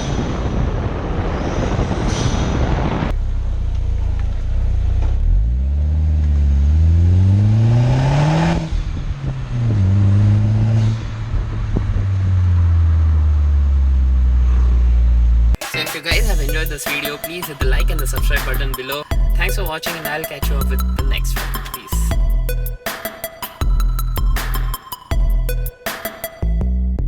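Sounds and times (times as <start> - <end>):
rushing noise: 0.0 - 3.2
car engine revving: 3.1 - 15.6.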